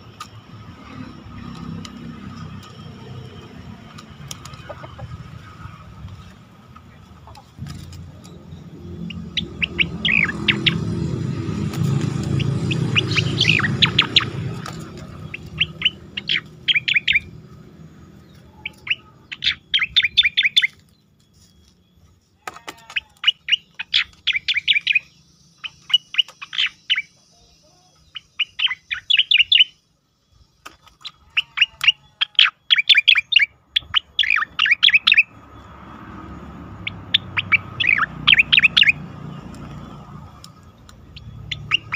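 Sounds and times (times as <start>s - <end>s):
bird singing whistled notes: 8.2s - 22.2s, 22.9s - 35.9s, 36.6s - 41.9s.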